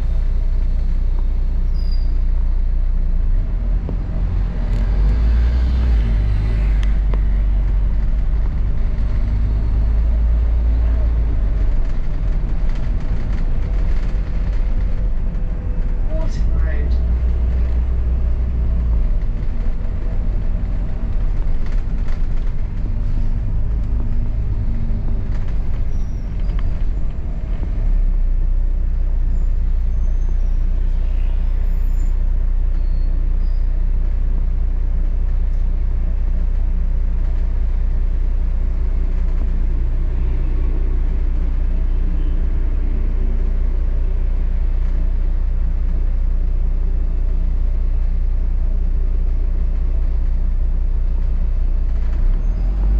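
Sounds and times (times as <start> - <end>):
bus engine rumble: 0.0 - 52.9
faint high squeaks: 1.6 - 2.3, 25.6 - 26.8.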